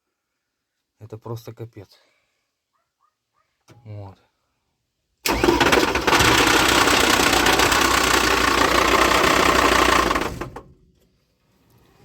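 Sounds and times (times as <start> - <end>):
diesel engine knocking: 5.3 - 10.6.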